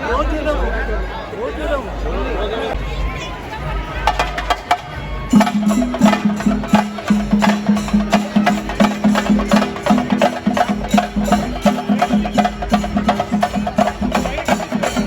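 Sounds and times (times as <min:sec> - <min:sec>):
fast driving percussion: 0:03.9 - 0:15.0.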